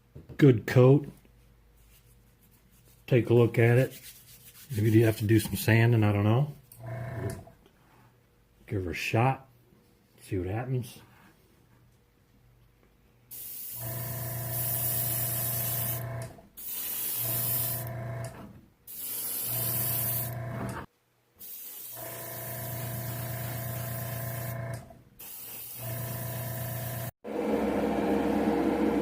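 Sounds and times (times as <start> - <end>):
airbrush spraying hiss: 14.5 - 16.0, 16.6 - 17.9, 18.9 - 20.3, 21.4 - 24.5, 25.2 - 26.2.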